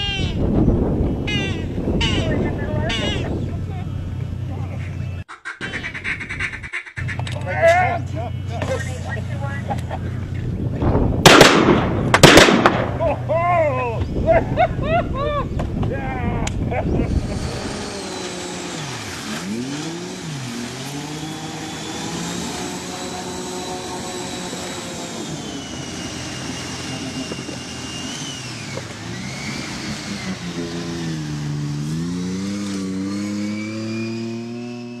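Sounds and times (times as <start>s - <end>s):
engine revving: 16.5s - 35.0s
thin high whine: 20.2s - 31.4s.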